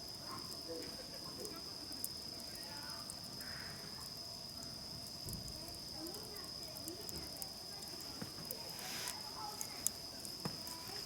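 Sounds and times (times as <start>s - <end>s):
campfire crackling and popping: 0.0s - 11.0s.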